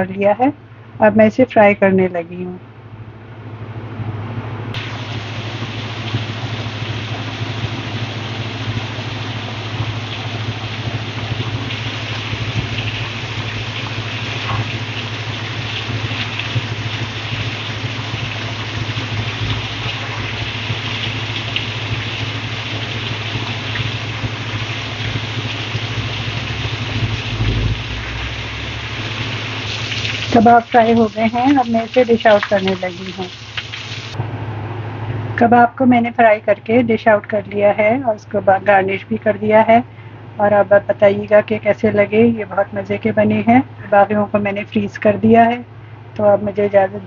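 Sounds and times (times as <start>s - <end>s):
low hum: 0.0s - 32.1s, 34.1s - 46.8s
meat sizzling in oil: 4.8s - 34.2s.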